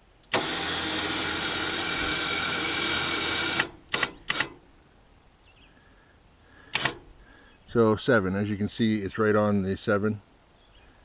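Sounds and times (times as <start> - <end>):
sawmill head-lift motor running: 0.3 - 4.6
quick clicks: 3.4 - 4.6, 6.6 - 7.1.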